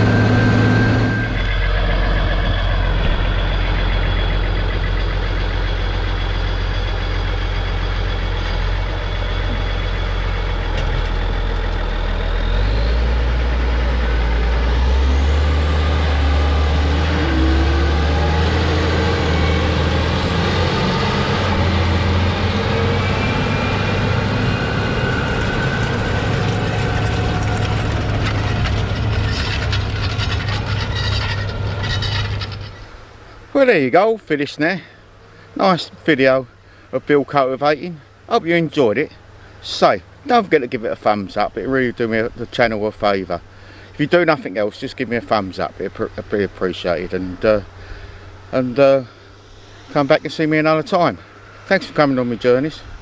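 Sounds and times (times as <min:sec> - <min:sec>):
tractor diesel engine under load: 0:00.0 - 0:53.0
thin high whine: 0:44.3 - 0:53.0.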